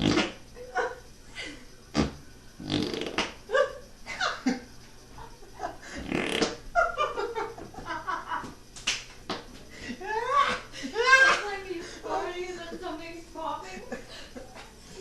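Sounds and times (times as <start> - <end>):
fart noises: 0.0 - 0.5, 1.9 - 3.5, 5.9 - 6.7.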